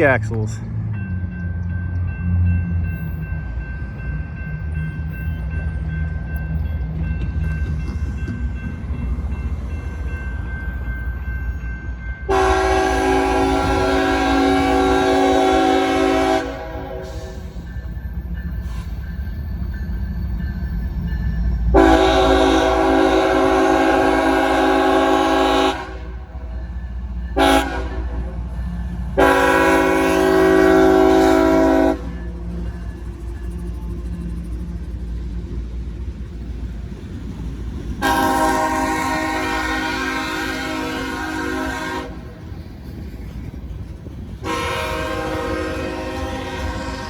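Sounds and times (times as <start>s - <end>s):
train rumbling past: 0.0s - 47.0s
locomotive air horn blasts: 12.3s - 17.4s, 21.7s - 26.2s, 27.4s - 28.4s, 29.2s - 32.2s, 38.0s - 42.3s, 44.4s - 47.0s.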